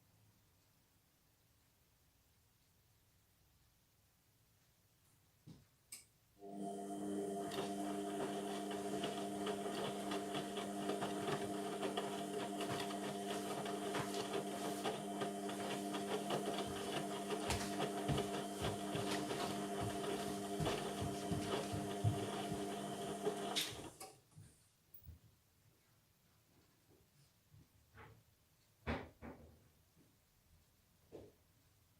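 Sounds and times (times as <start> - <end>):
washing machine motor hum: 6.4 - 24.0.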